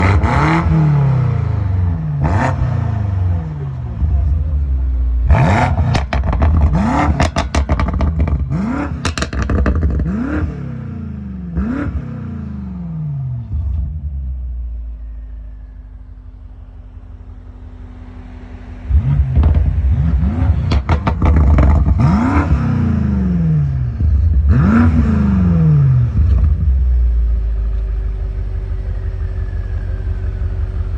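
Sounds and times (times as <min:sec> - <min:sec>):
car engine idling: 0:00.0 - 0:30.9
car engine revving: 0:00.0 - 0:30.9
exhaust crackles and pops: 0:05.3 - 0:10.5, 0:19.1 - 0:22.7, 0:26.1 - 0:28.0.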